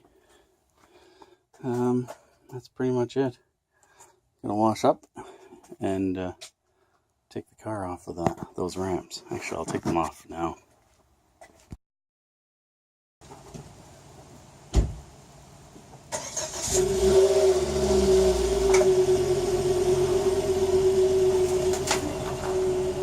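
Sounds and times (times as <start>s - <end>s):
thump: 14.7s - 15.0s
car engine starting and running: 16.1s - 23.0s.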